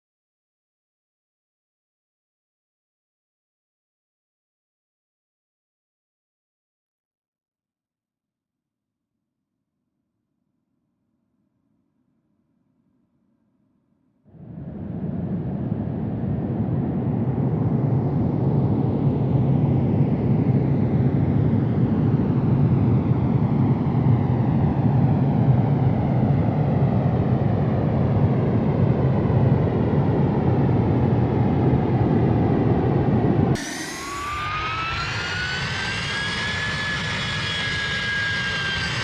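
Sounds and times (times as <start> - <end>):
jet engine whine rising: 14.3 - 39.0
jet engines deep rumble: 14.3 - 39.0.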